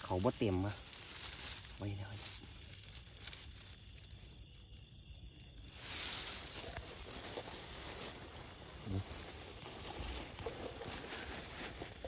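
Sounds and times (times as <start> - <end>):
insects trilling: 0.0 - 12.0
rustling: 0.0 - 12.0.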